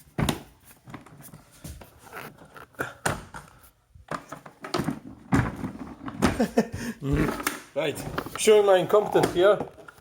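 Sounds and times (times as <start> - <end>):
plastic parts knocking and clicking: 2.4 - 10.0.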